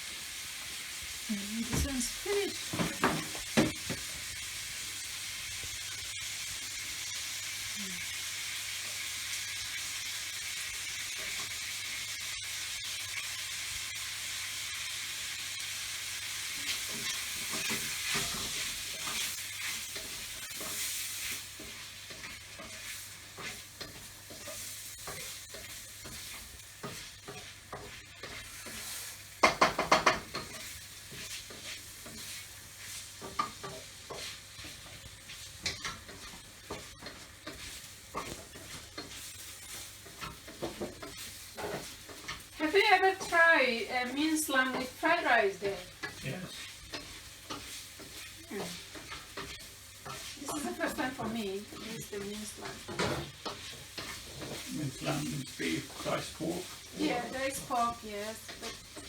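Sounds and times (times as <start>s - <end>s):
fried rice sizzling in a pan: 0.0s - 59.0s
utensil scraping a pan: 16.5s - 43.5s, 44.1s - 59.0s.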